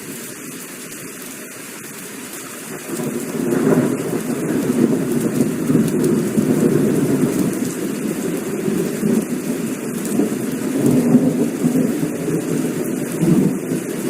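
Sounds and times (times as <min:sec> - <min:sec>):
heavy rain falling: 0:00.0 - 0:14.0
rolling thunder: 0:02.7 - 0:14.0.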